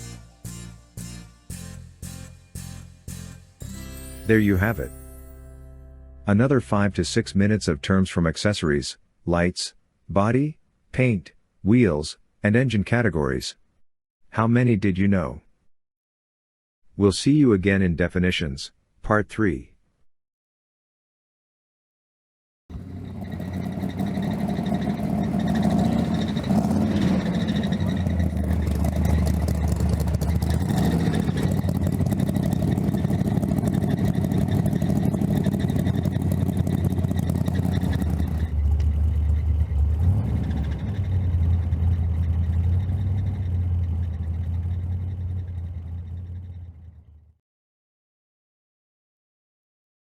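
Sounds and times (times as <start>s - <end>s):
car engine running: 22.7s - 47.3s.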